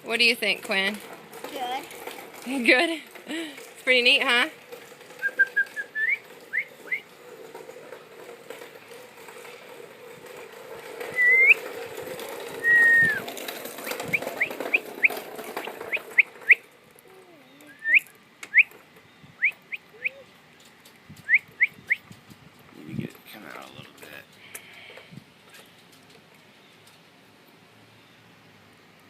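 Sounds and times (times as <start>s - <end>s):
person whistling: 11.2s - 11.6s, 12.6s - 13.2s.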